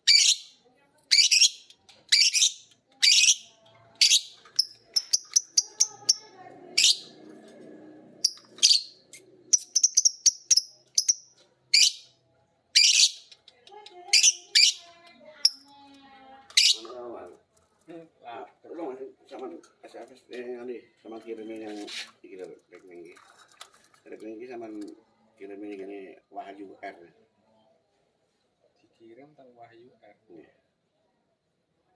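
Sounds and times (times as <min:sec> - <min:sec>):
lovebirds chirping shrilly: 0:08.2 - 0:12.0.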